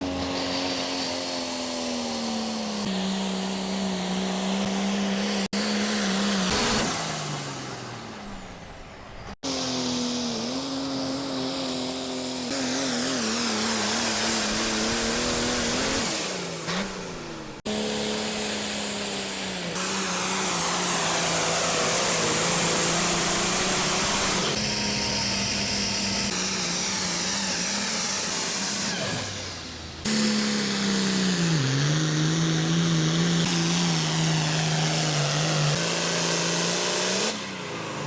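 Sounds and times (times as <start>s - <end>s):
small electric motors whining: 8.2s - 36.4s.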